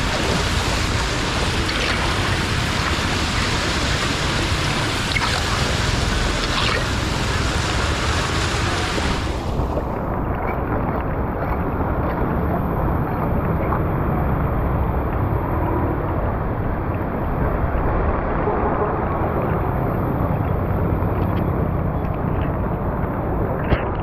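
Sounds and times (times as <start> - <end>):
floodwater rushing through drain: 0.0 - 15.4.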